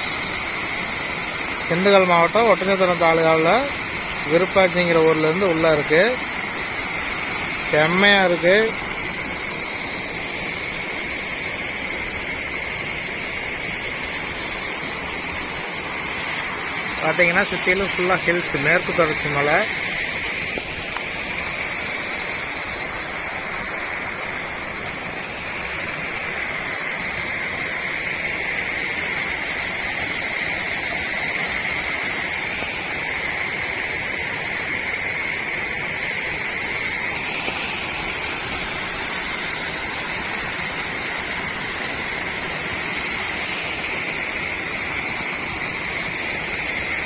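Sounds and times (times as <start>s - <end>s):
waterfall rushing water: 0.0s - 47.0s.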